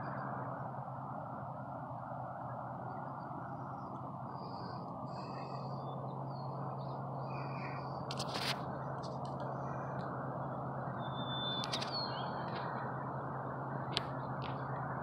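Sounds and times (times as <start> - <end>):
low background rumble: 0.0 - 15.0
small birds chirping: 2.9 - 13.2.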